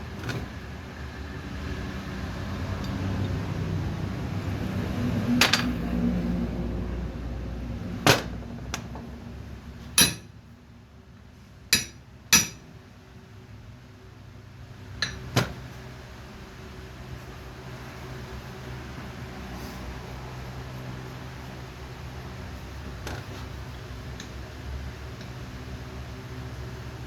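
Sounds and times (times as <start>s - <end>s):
hammer striking metal: 10.0s - 10.3s, 11.8s - 12.6s.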